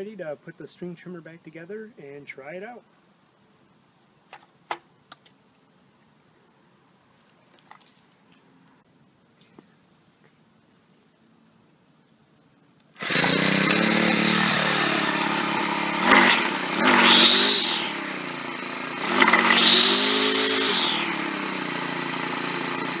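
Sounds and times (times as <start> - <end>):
string trimmer engine revving: 13.0 - 23.0
trimmer head whine: 13.0 - 23.0.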